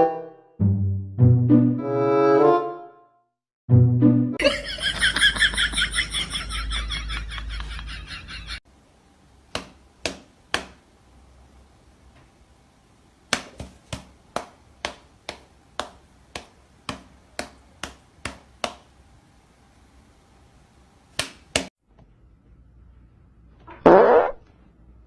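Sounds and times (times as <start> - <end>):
sharp taps or slaps: 9.5 - 10.8, 13.3 - 18.9, 21.2 - 21.7.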